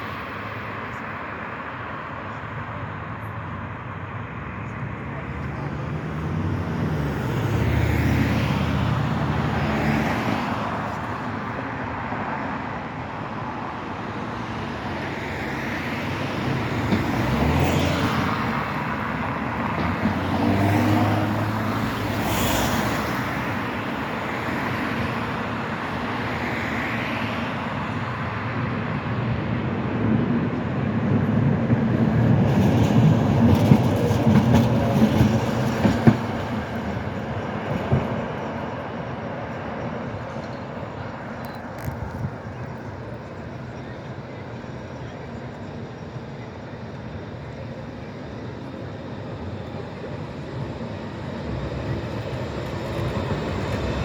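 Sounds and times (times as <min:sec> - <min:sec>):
street traffic passing: 0:00.0 - 0:54.0
tram wheels clattering over rail joints: 0:14.8 - 0:26.2, 0:29.8 - 0:43.7, 0:48.1 - 0:54.0.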